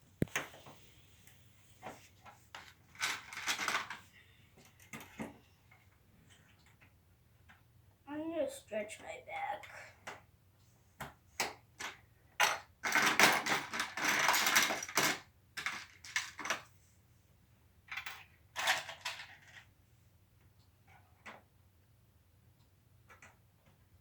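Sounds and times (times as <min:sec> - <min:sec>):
plastic pieces clicking and clattering: 0:02.6 - 0:04.0, 0:11.4 - 0:16.7, 0:17.9 - 0:19.7.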